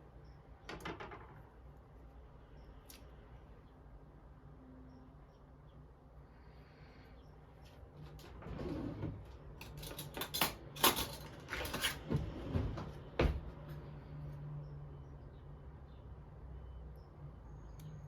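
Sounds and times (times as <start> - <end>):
faint steady hum: 0.0 - 11.2
light knocks and clatters: 0.7 - 1.5.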